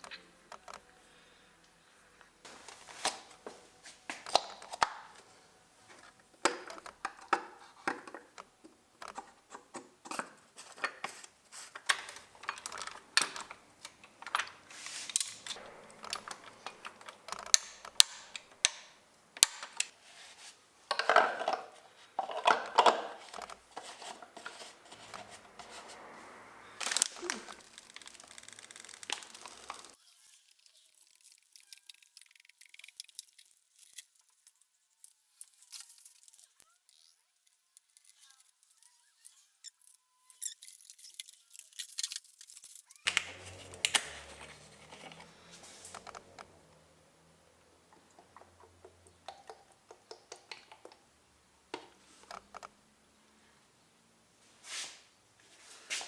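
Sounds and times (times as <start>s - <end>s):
metal tools clinking and scraping: 37.9s - 45.2s.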